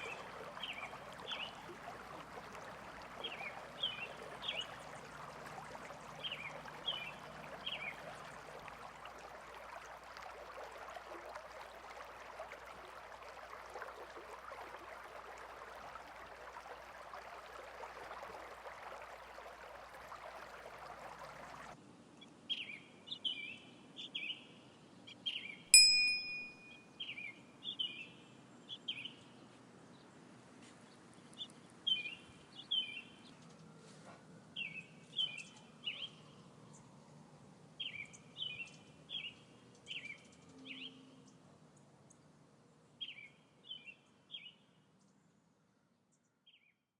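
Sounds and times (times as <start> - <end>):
small birds chirping: 0.0 - 8.2
bell-like ding: 25.8 - 26.7.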